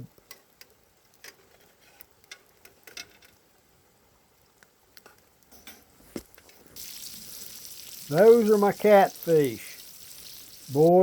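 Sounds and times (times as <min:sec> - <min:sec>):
fire popping and crackling: 0:00.0 - 0:03.6, 0:06.1 - 0:11.0.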